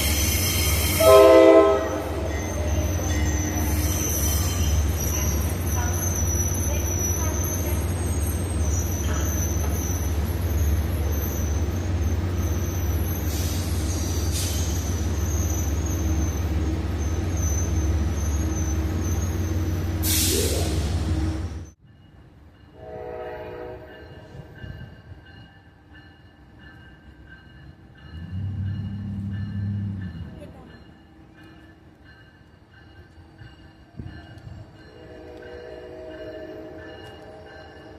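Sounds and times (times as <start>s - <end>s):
horn-like tone: 0.8s - 2.2s.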